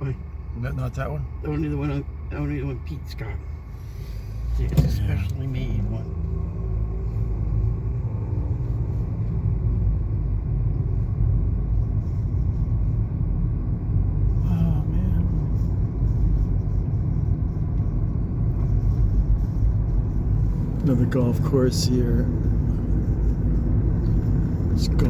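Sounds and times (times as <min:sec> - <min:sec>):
car driving low rumble: 0:00.0 - 0:25.0.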